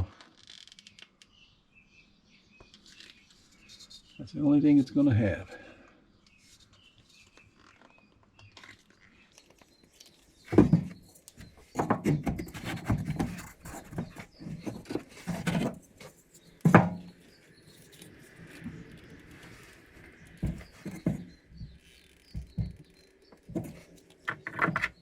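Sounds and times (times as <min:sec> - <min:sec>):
wood scraping and rubbing: 0:10.4 - 0:25.0
wooden knocks: 0:10.5 - 0:15.8, 0:16.6 - 0:17.2, 0:20.1 - 0:25.0.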